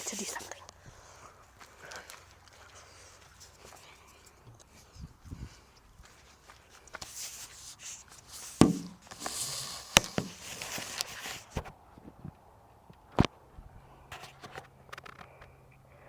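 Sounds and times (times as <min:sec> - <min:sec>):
footsteps: 0:00.0 - 0:11.7
rustling: 0:02.1 - 0:11.7
sharp knocks: 0:08.6 - 0:09.0.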